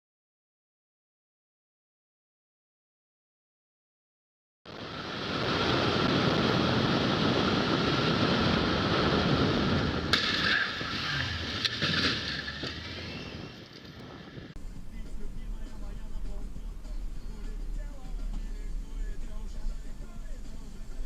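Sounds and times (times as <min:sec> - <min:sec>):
vehicle road and wind noise: 0:04.7 - 0:21.0.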